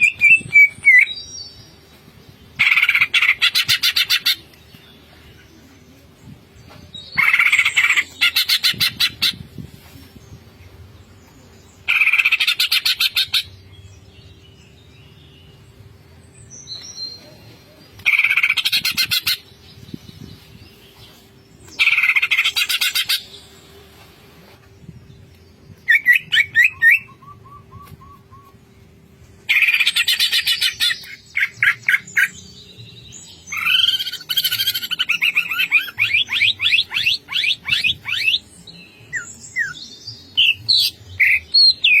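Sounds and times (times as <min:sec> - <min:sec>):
bird chattering song: 0:02.5 - 0:05.4, 0:07.1 - 0:09.6, 0:29.4 - 0:42.0.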